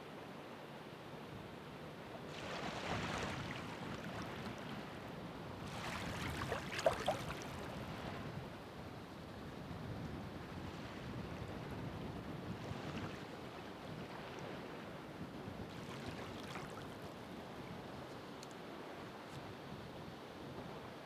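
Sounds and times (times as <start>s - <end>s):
surf washing: 2.2s - 8.4s, 12.5s - 17.2s
waves breaking and fizzing: 2.2s - 8.5s, 10.5s - 17.8s.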